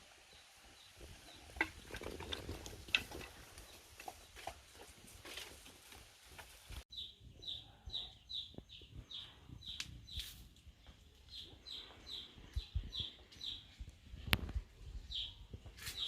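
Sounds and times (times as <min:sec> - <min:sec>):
bird chirping: 0:06.9 - 0:13.8.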